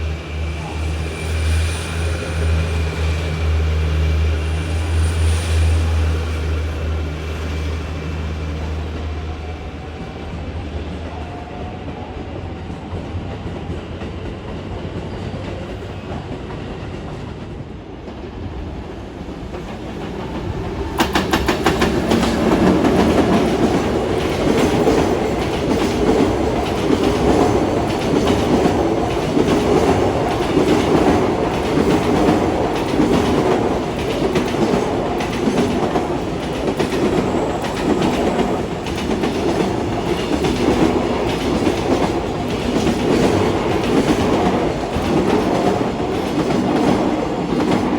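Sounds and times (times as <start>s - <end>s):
train passing at speed: 0.0s - 47.9s.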